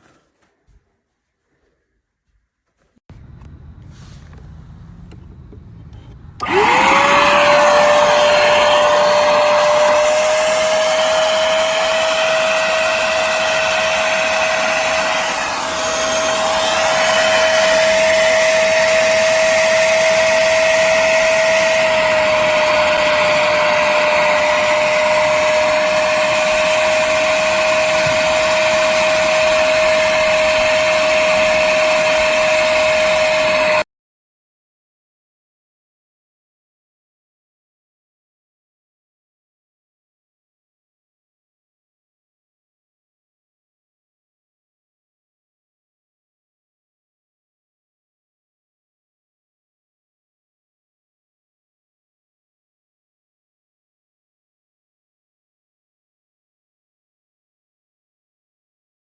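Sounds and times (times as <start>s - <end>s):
spot cleaner motor whining: 3.1s - 33.8s.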